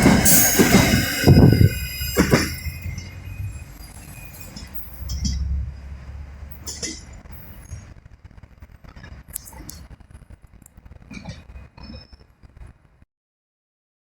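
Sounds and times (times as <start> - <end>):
freight train rumbling: 0.0 - 11.8
metallic clinks: 0.3 - 5.6.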